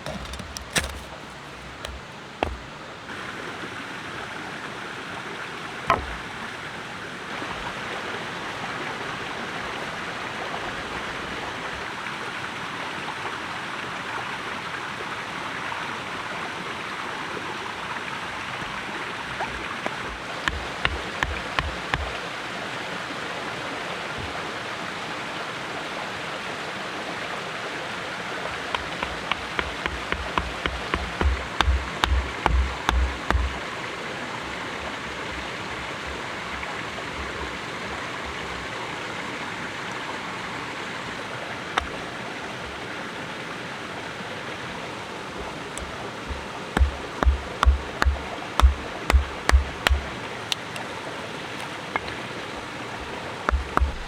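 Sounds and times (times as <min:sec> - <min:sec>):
clicks and knocks: 0:00.0 - 0:02.8, 0:05.9 - 0:06.3, 0:28.8 - 0:33.6, 0:45.4 - 0:50.8, 0:53.0 - 0:54.0.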